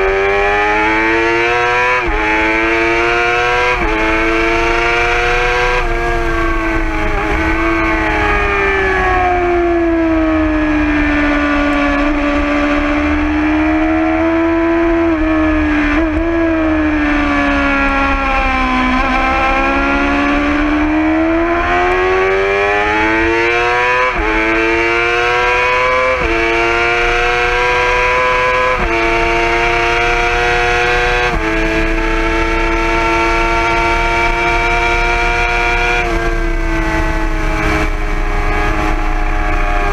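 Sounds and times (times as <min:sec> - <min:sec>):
motorcycle engine revving: 0:00.0 - 0:39.9
wind noise: 0:01.6 - 0:39.9.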